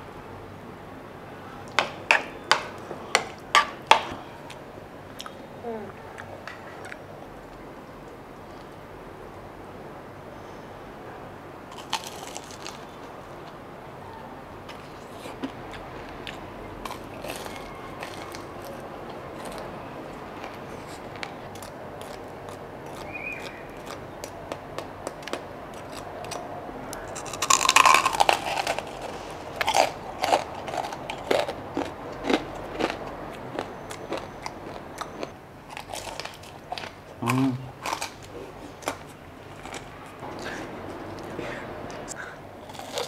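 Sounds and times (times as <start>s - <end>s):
loud crunching bite: 11.7s - 13.1s, 14.7s - 18.8s, 20.4s - 24.4s, 25.0s - 41.4s, 42.6s - 43.0s
crunchy chewing of crackling: 11.7s - 13.6s, 14.6s - 43.0s.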